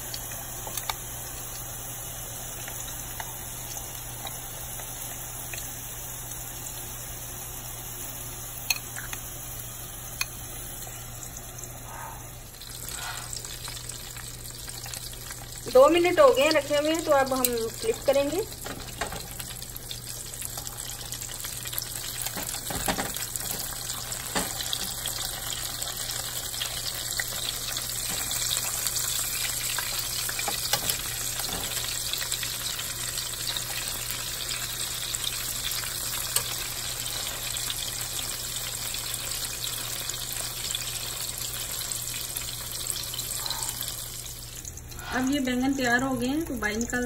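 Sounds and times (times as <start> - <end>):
eggplant sizzling in oil: 0.0 - 47.0
tongs and spatula clicking in pan: 8.6 - 9.3.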